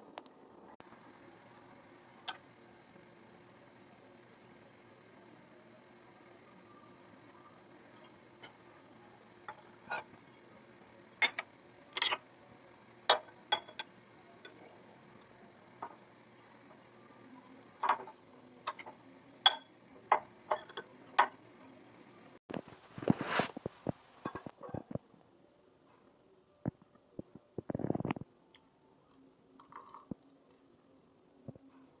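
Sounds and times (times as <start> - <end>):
microwave oven humming: 0.7 - 22.4.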